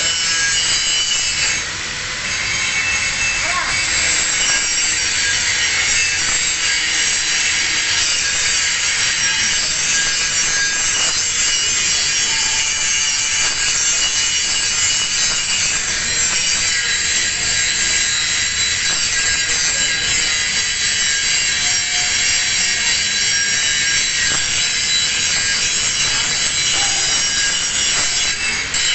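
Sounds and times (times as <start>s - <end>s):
angle grinder grinding metal: 0.0s - 28.9s.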